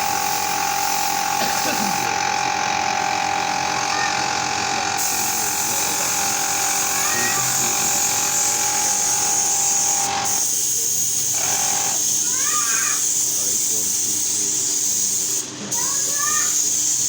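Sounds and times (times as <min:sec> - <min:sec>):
small electric motor whine: 0:00.0 - 0:17.0
hiss: 0:05.0 - 0:17.0.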